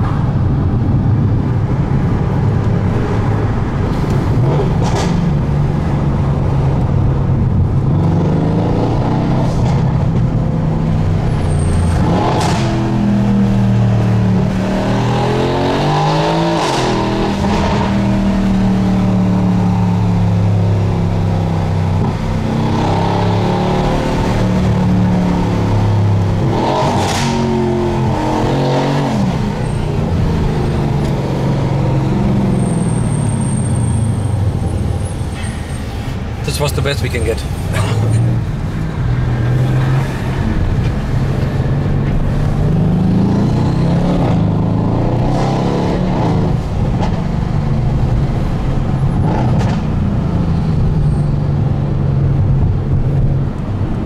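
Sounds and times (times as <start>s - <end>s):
car engine accelerating through gears: 11.1s - 34.2s, 37.8s - 54.0s.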